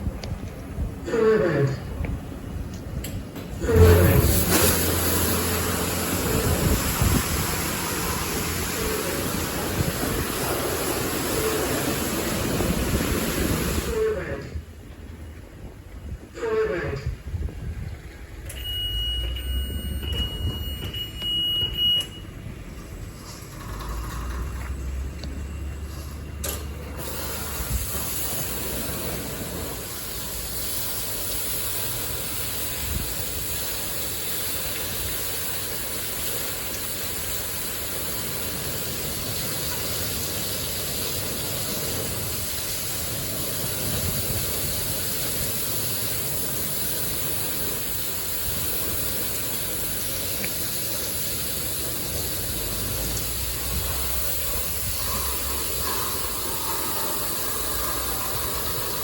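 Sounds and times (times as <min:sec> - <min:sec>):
high-pressure water spraying: 0:03.7 - 0:14.0, 0:25.8 - 0:59.0.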